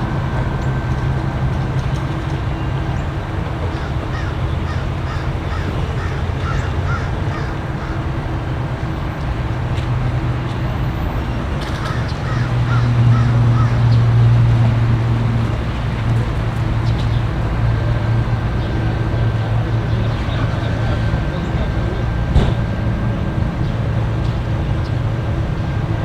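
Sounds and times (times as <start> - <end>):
low engine rumble: 0.0 - 26.0
bird calling: 3.7 - 8.1, 11.7 - 14.1.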